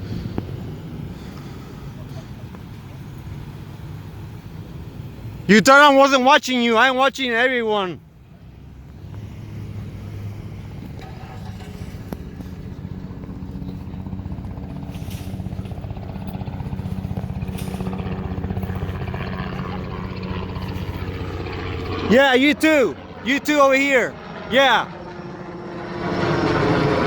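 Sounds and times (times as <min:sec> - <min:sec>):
vehicle engine idling low: 0:08.0 - 0:23.3.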